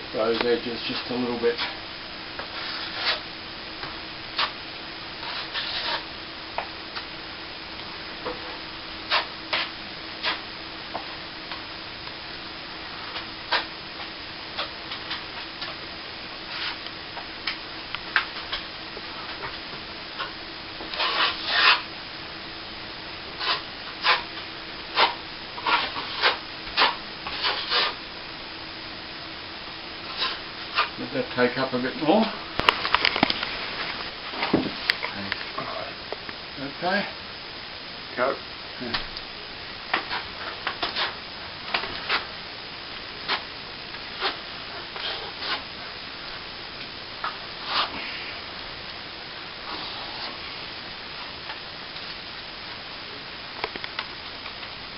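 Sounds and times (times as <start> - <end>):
steady hiss: 0.0 - 54.9
trowel scraping plaster: 2.5 - 3.2, 5.2 - 6.0, 21.0 - 21.9, 23.4 - 24.3, 25.0 - 28.0, 30.1 - 30.9, 44.2 - 45.6.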